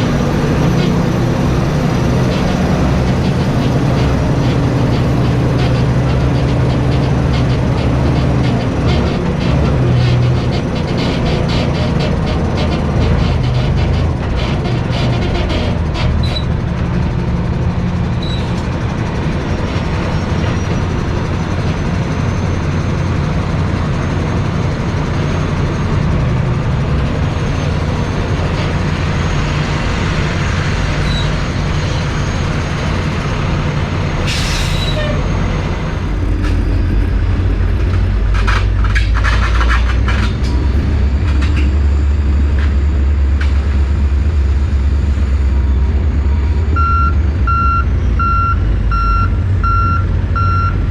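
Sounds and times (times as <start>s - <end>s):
truck engine and road rumble: 0.0s - 50.9s.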